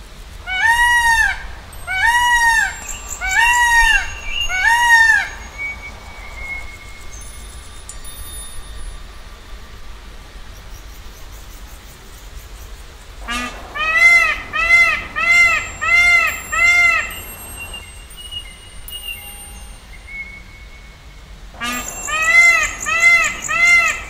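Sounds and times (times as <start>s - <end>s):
faint outdoor background: 0.0s - 24.0s
bird calling arching notes: 0.5s - 7.9s, 13.2s - 24.0s.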